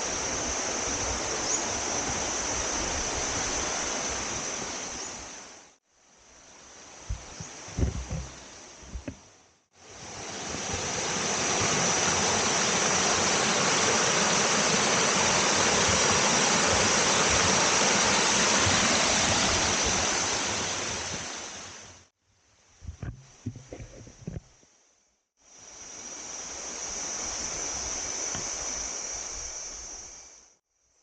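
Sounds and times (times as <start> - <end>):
low thumps: 7.1 - 9.3, 22.8 - 24.6
waterfall rushing: 9.8 - 21.9.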